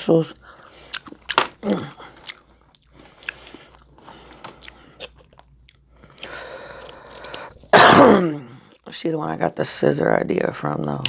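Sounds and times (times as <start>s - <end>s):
close chewing and biting: 0.5s - 7.7s.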